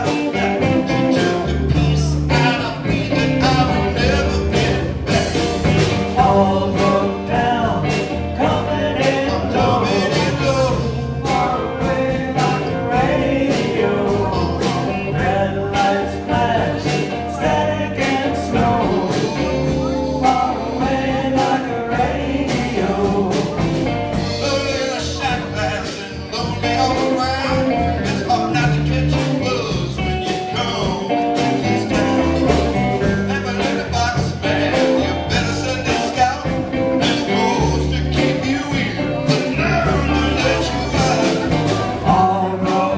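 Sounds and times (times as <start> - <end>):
lead vocal singing: 0.0 - 42.9
live band playing: 0.0 - 42.9.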